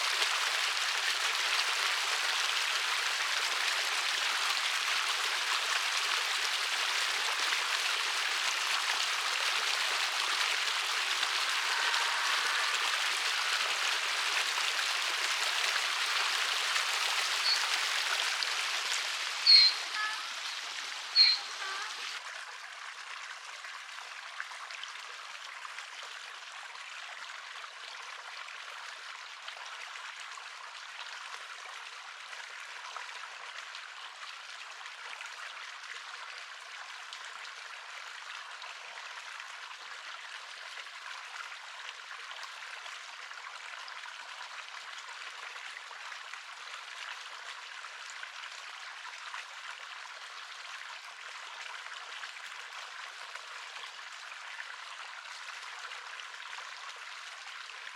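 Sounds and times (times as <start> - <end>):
river water flowing: 0.0 - 23.1.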